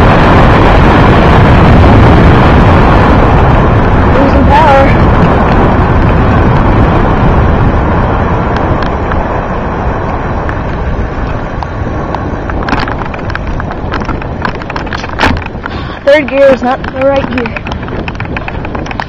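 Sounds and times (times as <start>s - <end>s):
wind rushing over microphone: 0.0s - 19.0s
light clicks and rattles: 11.6s - 19.0s.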